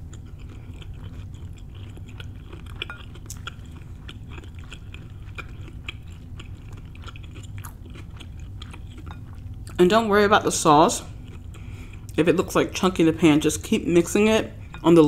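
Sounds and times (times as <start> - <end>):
person chewing food: 0.0 - 9.8, 11.0 - 12.7, 14.5 - 15.0
faint low hum: 0.0 - 15.0.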